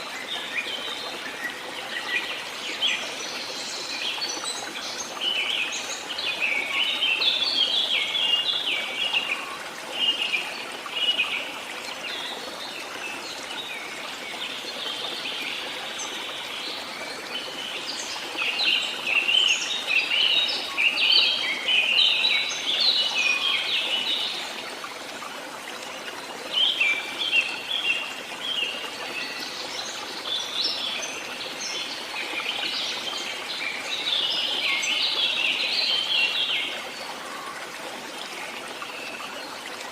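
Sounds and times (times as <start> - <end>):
running water: 0.0 - 39.9
songbirds twittering: 25.6 - 39.9.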